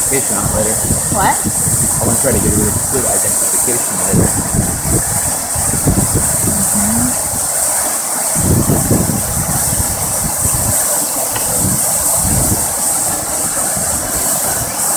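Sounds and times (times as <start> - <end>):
low rumbles: 0.0 - 7.5
waterfall rushing: 0.0 - 14.9.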